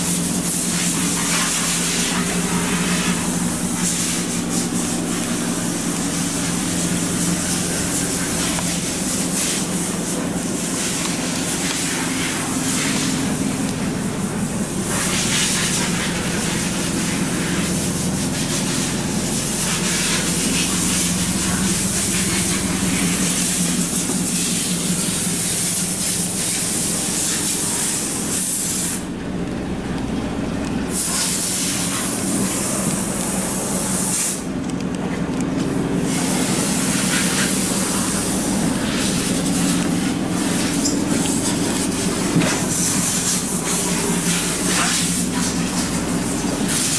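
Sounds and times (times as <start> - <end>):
diesel engine idling: 0.0 - 46.9
broad hiss: 30.9 - 34.5.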